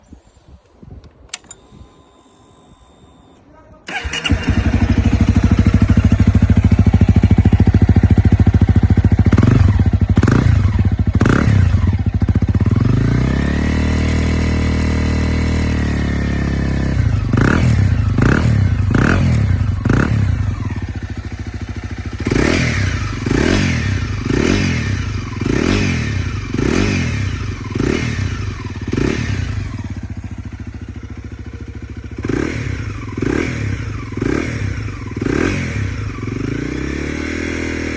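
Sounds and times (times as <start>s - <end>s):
motorcycle engine revving: 3.9s - 37.9s.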